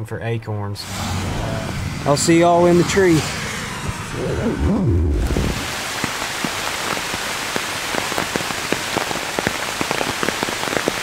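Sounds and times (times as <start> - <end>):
steady rain hiss: 5.1 - 11.0
raindrops tapping on leaves: 5.6 - 11.0.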